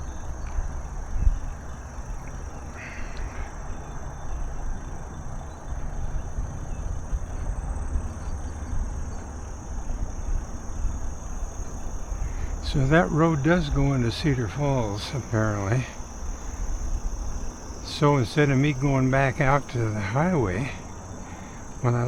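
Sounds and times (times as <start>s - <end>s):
insects droning: 0.0s - 22.0s
wind buffeting microphone: 0.0s - 22.0s
bicycle tyre rumble: 4.8s - 21.9s.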